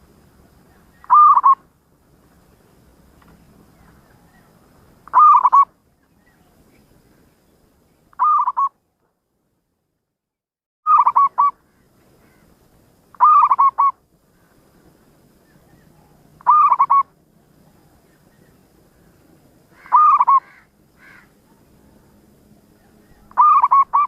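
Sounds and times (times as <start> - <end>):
dove cooing: 0.6 - 1.6, 3.8 - 5.7, 8.2 - 8.7, 10.9 - 11.5, 13.2 - 14.0, 15.6 - 18.1, 19.7 - 22.2, 22.8 - 24.0.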